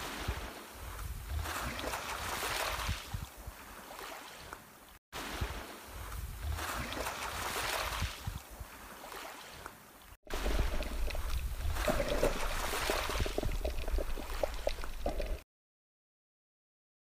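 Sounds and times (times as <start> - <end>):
low underwater rumble: 10.3 - 15.4
underwater rushing hiss: 10.3 - 15.4.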